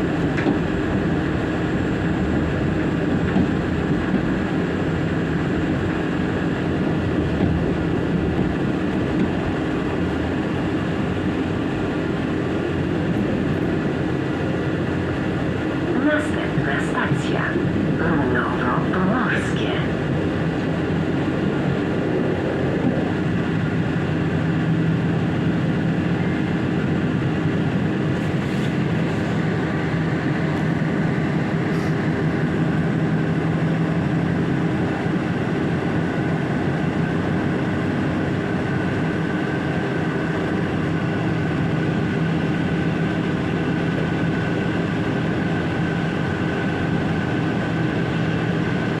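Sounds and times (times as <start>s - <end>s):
train wheels rumbling on track: 0.0s - 49.0s
steady hum: 9.6s - 35.1s.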